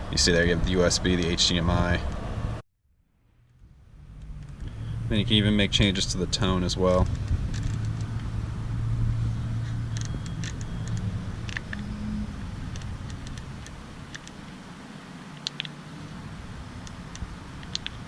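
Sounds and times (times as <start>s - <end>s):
car running low hum: 0.0s - 18.0s.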